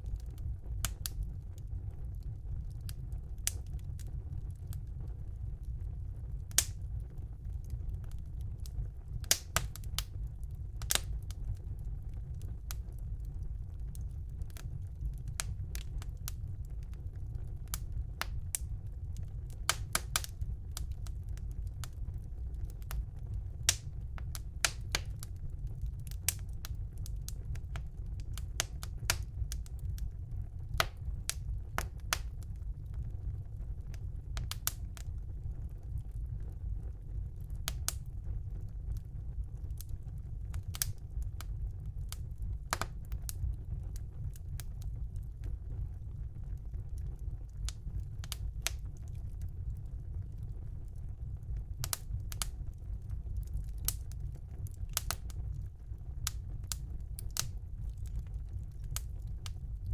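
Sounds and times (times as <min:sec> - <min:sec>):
low rumble of flames: 0:00.0 - 0:59.9
wood fire crackling and popping: 0:00.0 - 0:59.9.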